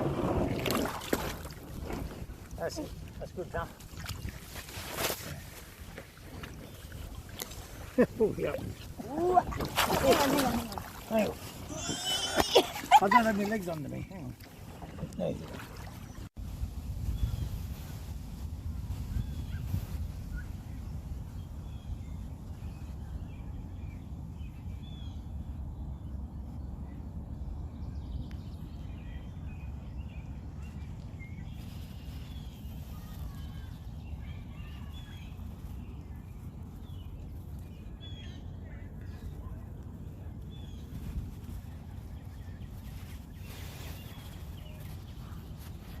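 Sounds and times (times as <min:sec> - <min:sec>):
steady low rumble: 0:00.0 - 0:04.8
small birds chirping: 0:27.9 - 0:46.0.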